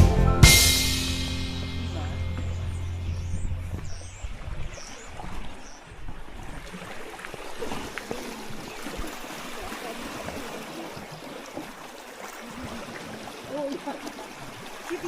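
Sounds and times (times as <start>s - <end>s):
background music: 0.0s - 3.2s
water lapping at shore: 1.6s - 15.0s
small splashes and clicks: 4.8s - 15.0s.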